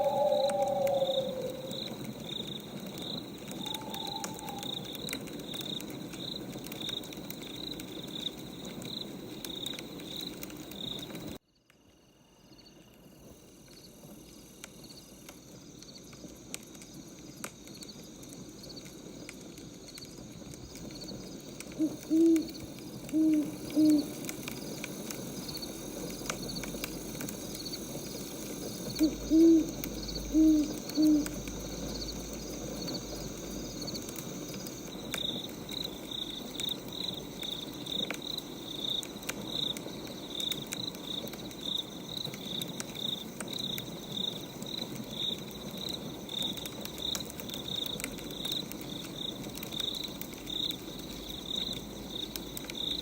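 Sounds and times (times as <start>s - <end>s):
owl hooting: 0.0s - 2.4s, 3.4s - 5.2s, 21.7s - 24.3s, 28.8s - 31.6s
crickets chirping: 0.0s - 53.0s.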